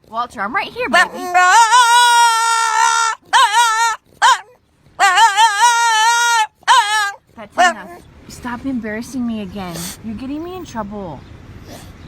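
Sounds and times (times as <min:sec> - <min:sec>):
dog howling: 0:00.9 - 0:07.9
dog yelp: 0:00.9 - 0:08.0.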